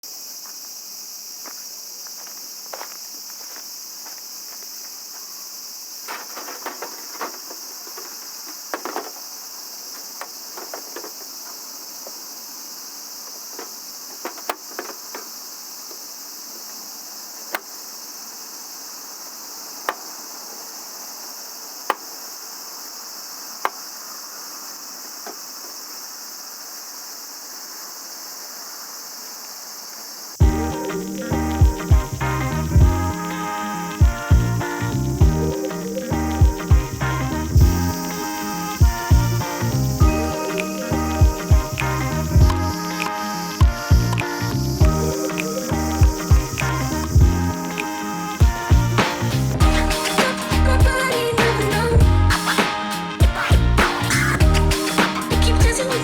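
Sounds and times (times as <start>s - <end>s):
crickets and night insects chirping: 0.0s - 56.0s.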